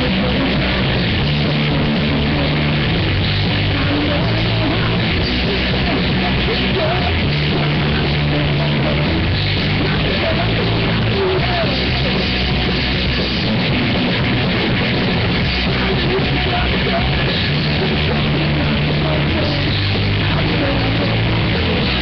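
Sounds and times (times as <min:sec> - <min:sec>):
drums: 0:00.0 - 0:22.0
electric guitar: 0:00.0 - 0:22.0
pulsing bass line: 0:00.0 - 0:22.0.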